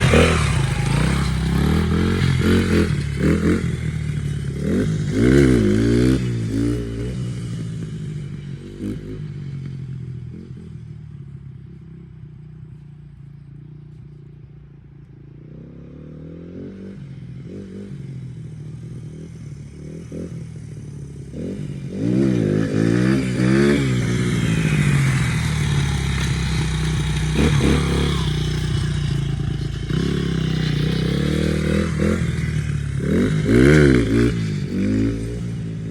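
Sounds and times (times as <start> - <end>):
dirt bike engine revving: 0.0 - 7.6, 21.2 - 35.9.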